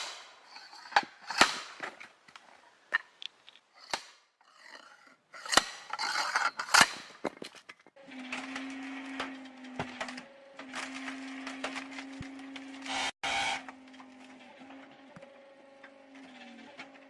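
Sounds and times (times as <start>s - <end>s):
scraping and rubbing: 0.4s - 2.1s, 2.9s - 10.0s.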